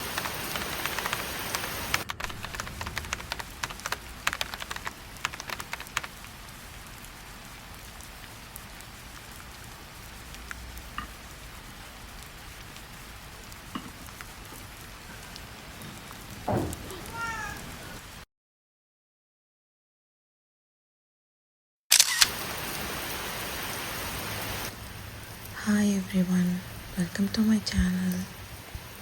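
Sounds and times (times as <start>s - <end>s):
heavy drips tapping: 0.0s - 6.3s
rain pattering: 0.0s - 18.2s, 22.2s - 29.0s.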